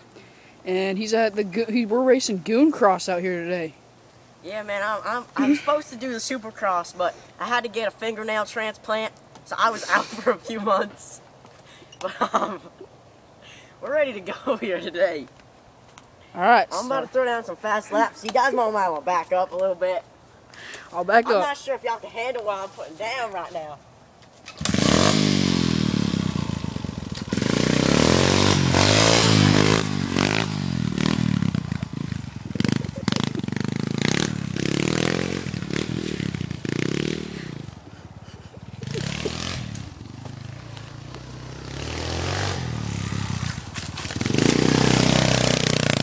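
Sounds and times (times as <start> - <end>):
pit bike engine revving: 24.6 - 46.0.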